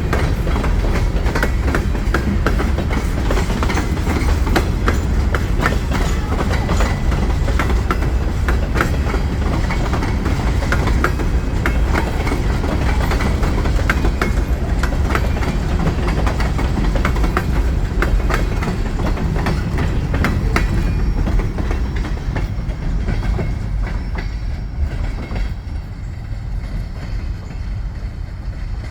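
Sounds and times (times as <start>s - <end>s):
low rumble of freight cars: 0.0s - 28.9s
wheels clicking over rail joints: 0.0s - 28.9s.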